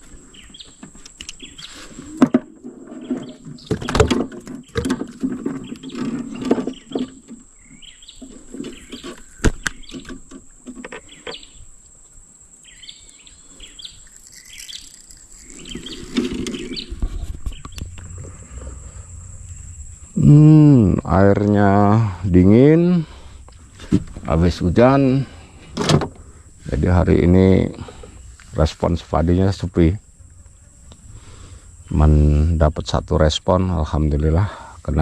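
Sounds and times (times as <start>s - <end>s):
birds chirping: 0.0s - 35.0s
knocks and handling noises: 2.1s - 7.5s.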